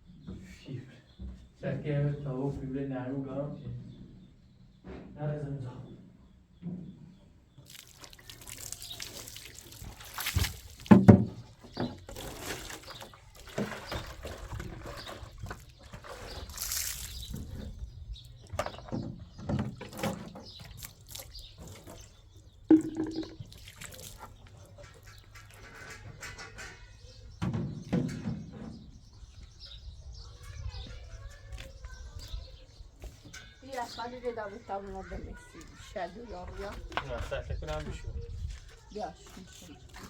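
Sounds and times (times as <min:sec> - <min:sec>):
liquid pouring and splashing: 0:07.6 - 0:11.1, 0:12.1 - 0:14.5, 0:16.4 - 0:17.4, 0:19.9 - 0:21.9, 0:22.7 - 0:24.3
sharp knock: 0:22.7 - 0:23.4.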